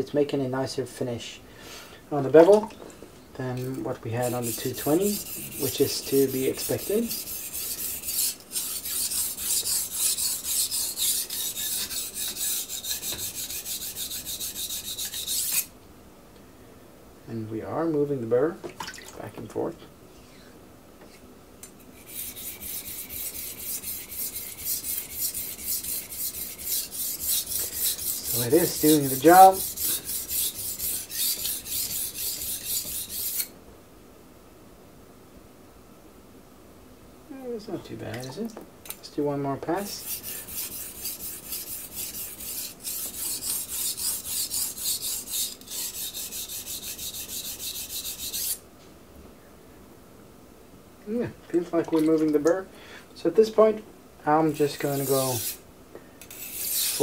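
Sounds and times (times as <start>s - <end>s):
knife scraping on sharpening stone: 4.2s - 15.7s, 21.8s - 33.5s, 39.9s - 48.6s, 54.5s - 55.6s, 56.2s - 57.0s.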